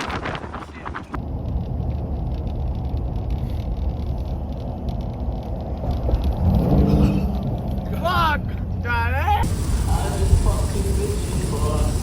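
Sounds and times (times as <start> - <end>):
low rumble: 9.4 - 12.0.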